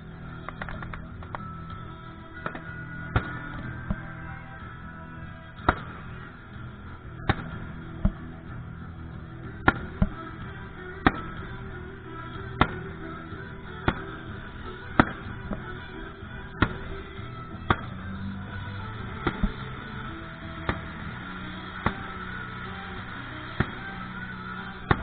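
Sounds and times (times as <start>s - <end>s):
background music: 0.0s - 25.0s
fireworks bangs: 0.3s - 25.0s.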